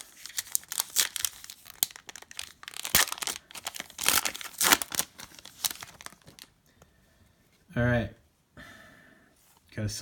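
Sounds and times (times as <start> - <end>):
wrappers crinkling and tearing: 0.0 - 6.5.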